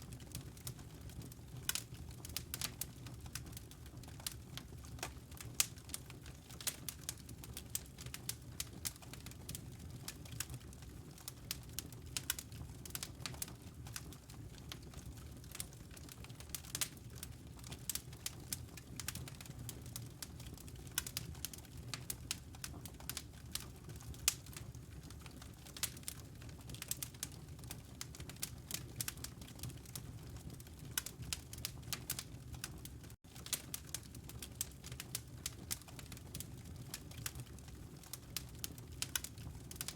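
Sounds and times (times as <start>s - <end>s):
wood fire crackling and popping: 0.1s - 39.9s.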